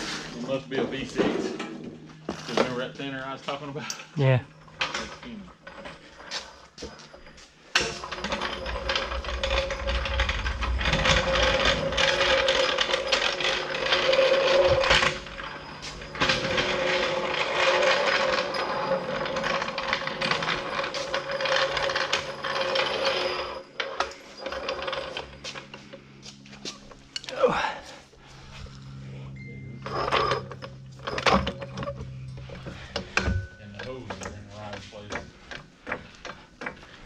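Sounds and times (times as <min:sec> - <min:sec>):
power tool whirring: 0:07.7 - 0:26.2.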